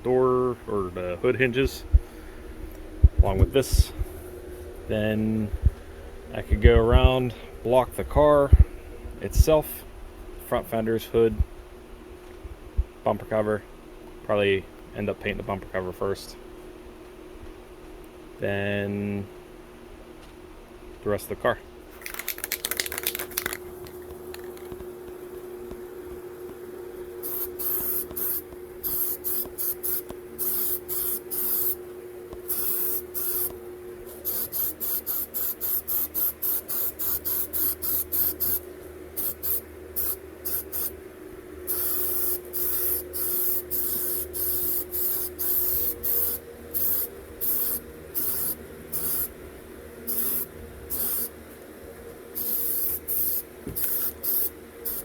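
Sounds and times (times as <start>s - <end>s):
steady hum: 0.0s - 55.0s
spray gun hissing bursts: 27.2s - 31.8s, 32.5s - 33.5s, 34.1s - 38.6s, 39.2s - 41.0s, 41.7s - 49.3s, 50.1s - 51.3s, 52.4s - 55.0s.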